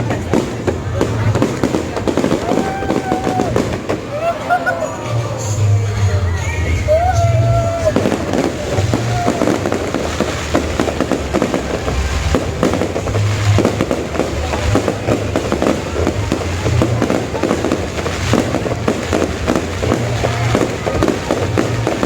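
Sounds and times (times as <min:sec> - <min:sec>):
fireworks bangs and crackles: 0:00.0 - 0:22.0
music with low bass line: 0:04.9 - 0:22.0.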